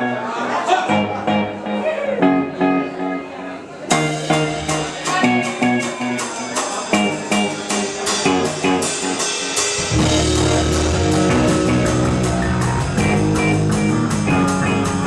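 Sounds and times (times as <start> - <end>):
electric guitar: 0.0 - 15.0
rock band playing live: 3.9 - 15.0
steady drum hits: 9.6 - 15.0.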